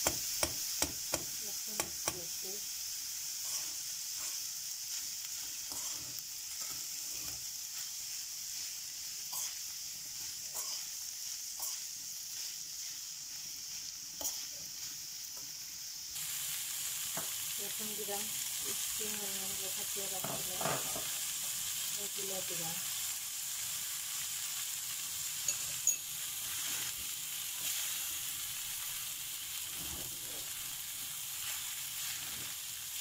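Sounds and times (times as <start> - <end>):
meat sizzling in a pan: 0.0 - 33.0
metal spoon scraping pan: 5.6 - 7.4.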